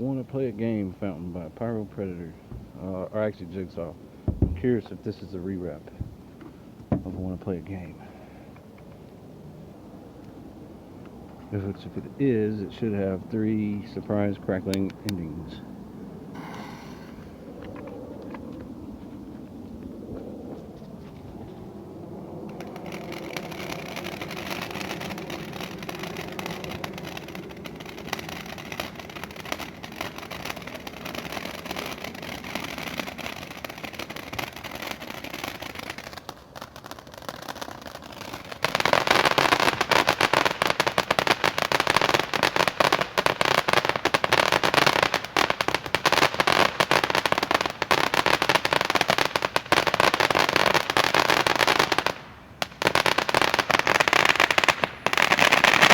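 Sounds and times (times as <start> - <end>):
firework crackling: 2.1 - 6.3, 16.3 - 17.7, 22.4 - 55.9
firework fountain hissing: 16.3 - 17.6, 22.6 - 47.2.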